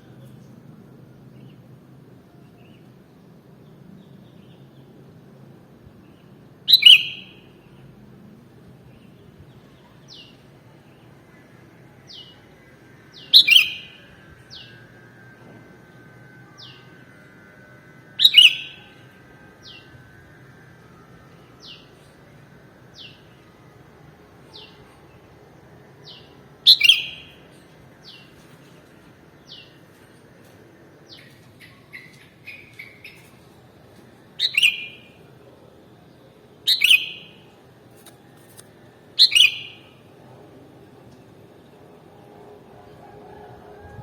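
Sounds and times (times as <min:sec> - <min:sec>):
bird chirping: 0:06.7 - 0:07.5, 0:13.1 - 0:14.8, 0:18.2 - 0:19.0, 0:26.0 - 0:35.3, 0:36.1 - 0:37.6, 0:39.2 - 0:40.0.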